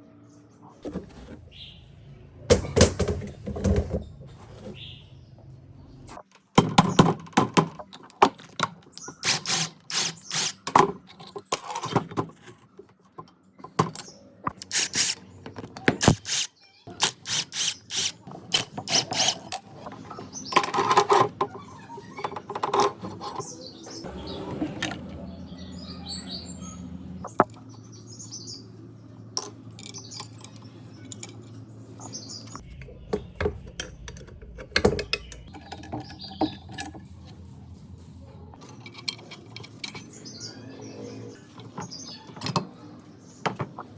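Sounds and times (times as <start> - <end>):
hand tools clinking on metal: 6.7 - 15.2.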